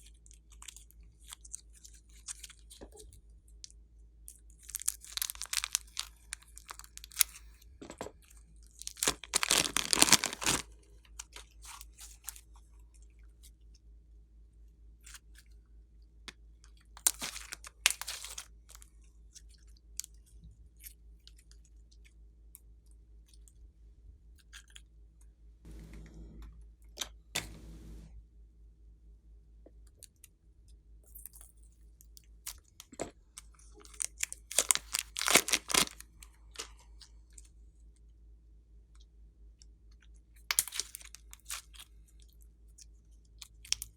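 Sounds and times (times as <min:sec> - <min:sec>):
slime squished by hand crackling: 0:08.9 - 0:10.6, 0:34.5 - 0:36.0.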